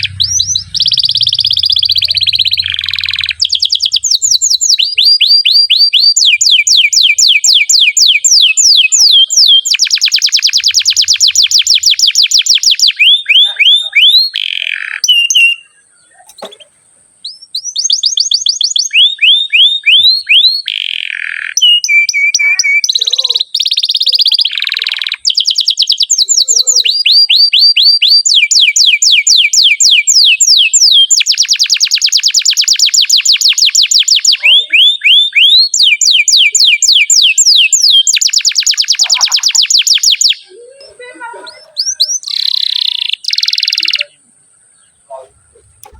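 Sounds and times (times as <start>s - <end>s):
canary singing rapid trills: 0.0s - 45.9s.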